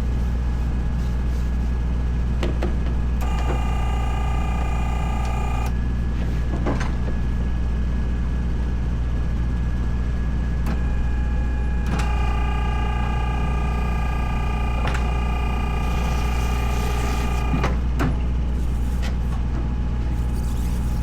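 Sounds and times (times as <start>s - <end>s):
high whine of steady tones: 3.2s - 5.7s, 11.1s - 17.8s
sharp clicks: 3.2s - 5.7s, 11.9s - 17.7s.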